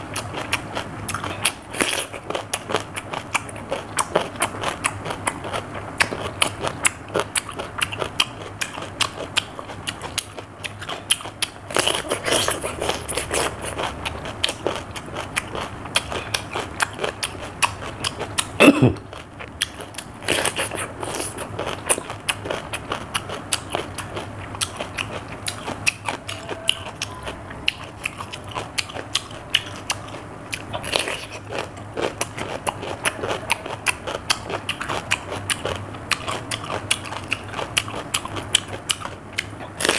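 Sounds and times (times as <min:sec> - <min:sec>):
chewing crunchy cucumber: 0:00.0 - 0:39.9.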